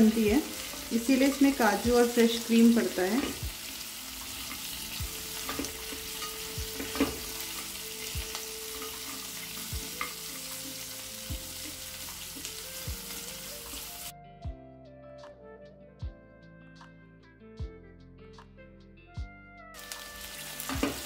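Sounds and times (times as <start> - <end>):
food sizzling in hot oil: 0.0 - 14.1, 19.8 - 21.0
background music with soft beat: 0.0 - 21.0.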